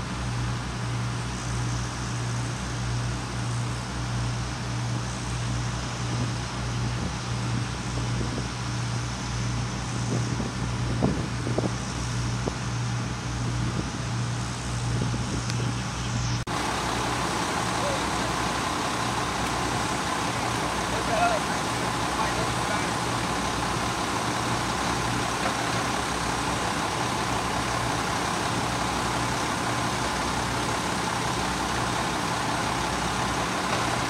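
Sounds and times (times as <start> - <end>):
engine running steadily: 0.0 - 34.0
wind buffeting microphone: 9.7 - 28.2.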